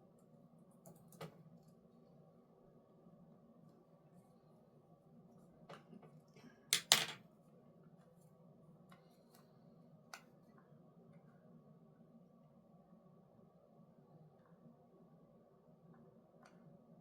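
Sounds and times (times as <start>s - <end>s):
faint room hum: 0.0s - 17.0s
objects handled on desk: 6.8s - 7.2s.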